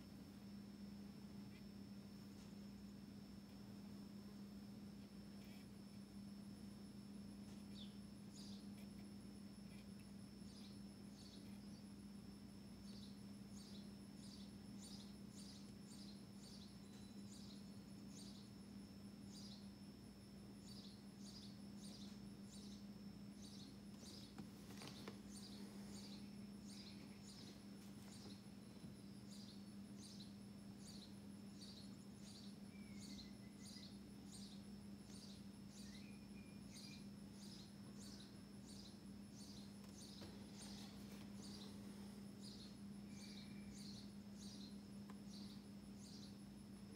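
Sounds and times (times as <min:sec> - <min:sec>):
steady low hum: 0:00.0 - 0:46.9
faint high chirps: 0:20.6 - 0:46.5.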